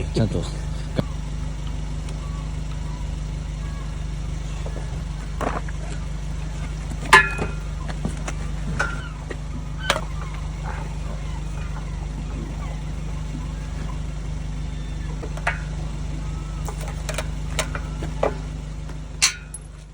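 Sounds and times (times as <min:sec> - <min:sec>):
low machine hum: 0:00.0 - 0:19.9
hand tools clinking on metal: 0:04.4 - 0:19.9.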